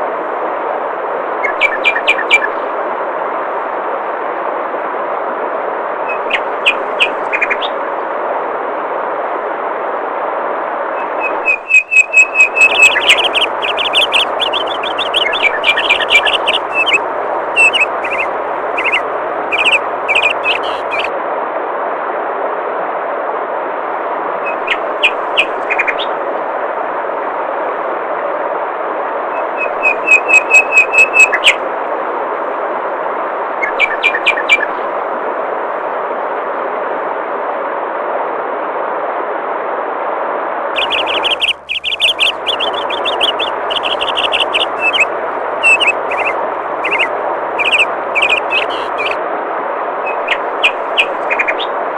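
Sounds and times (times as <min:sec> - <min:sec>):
songbirds chirping: 0:01.4 - 0:02.6, 0:06.1 - 0:07.8, 0:11.0 - 0:21.1, 0:24.5 - 0:26.1, 0:40.8 - 0:49.2, 0:50.1 - 0:51.7
flowing water rushing: 0:11.0 - 0:21.1, 0:40.8 - 0:49.2.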